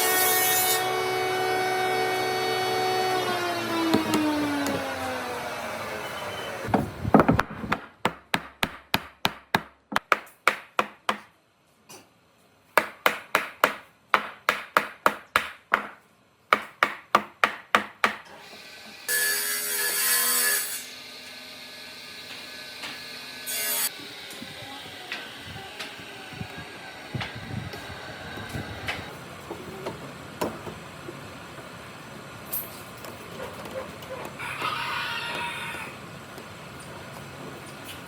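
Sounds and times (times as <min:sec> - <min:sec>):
hand saw cutting wood: 0:00.0 - 0:05.6.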